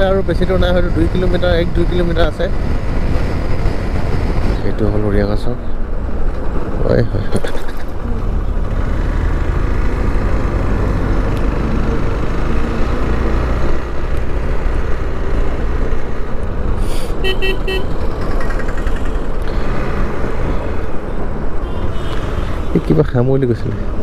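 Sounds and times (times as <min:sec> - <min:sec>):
motorcycle road and engine noise: 0:00.0 - 0:24.0
vehicle horn short toots: 0:17.2 - 0:17.9.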